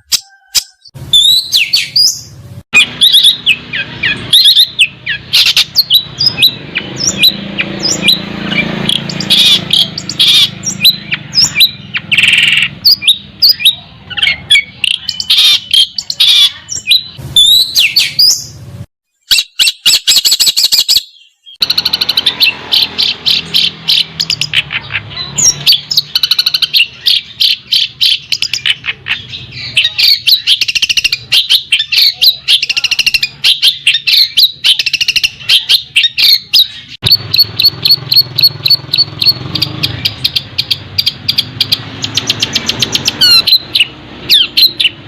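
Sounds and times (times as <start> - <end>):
songbird singing: 0.0 - 45.0
rapid rattling trill: 21.6 - 28.8.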